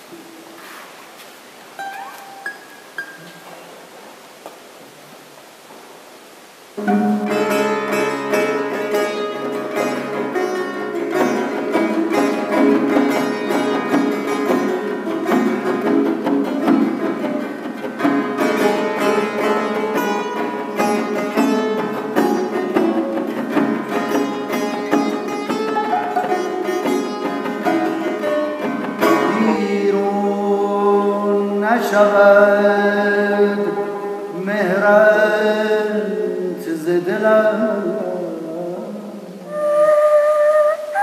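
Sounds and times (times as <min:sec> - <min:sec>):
plucked string instrument solo: 0:01.8 - 0:03.5, 0:06.8 - 0:29.8.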